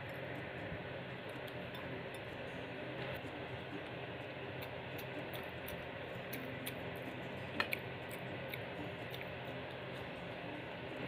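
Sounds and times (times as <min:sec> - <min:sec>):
person chewing: 0:07.6 - 0:09.4.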